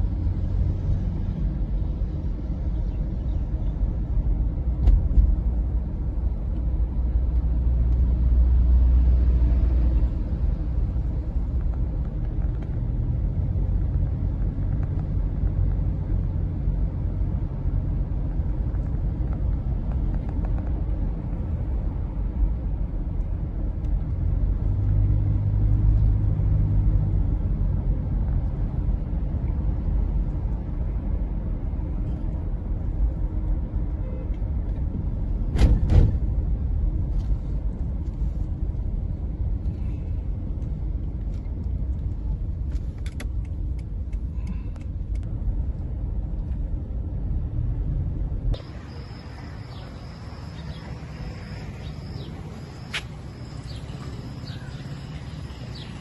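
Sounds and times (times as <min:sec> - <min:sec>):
high thin steady tone: 0:48.6 - 0:56.0.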